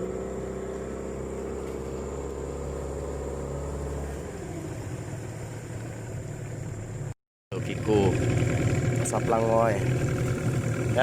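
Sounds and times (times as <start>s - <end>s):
engine winding down: 0.0s - 11.0s.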